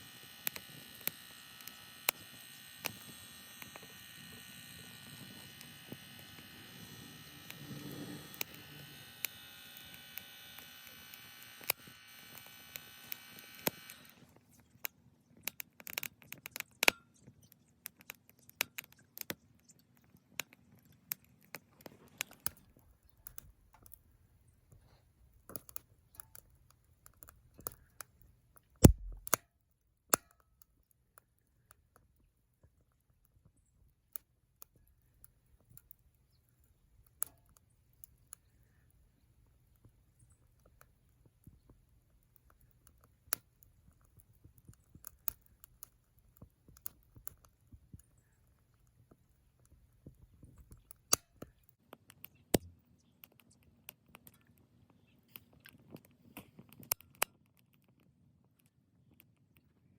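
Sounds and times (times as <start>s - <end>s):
electric blower fan whining: 0.0s - 14.3s
sharp clicks and taps: 28.8s - 29.4s.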